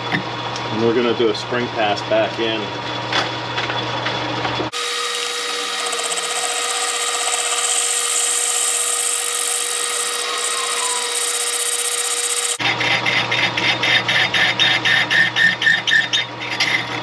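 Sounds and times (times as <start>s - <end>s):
metal lathe cutting: 4.7s - 12.6s.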